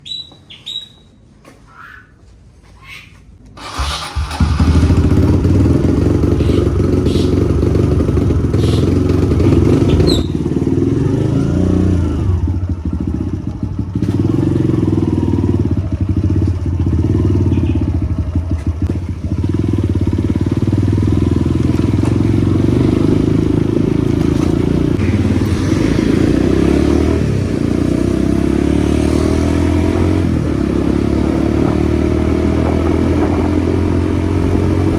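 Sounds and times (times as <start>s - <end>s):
motorcycle engine revving: 3.6s - 34.9s.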